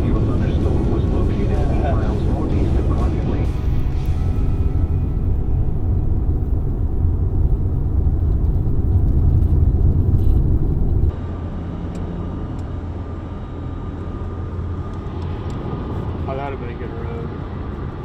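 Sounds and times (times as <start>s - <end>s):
vehicle road and engine rumble: 0.0s - 18.0s.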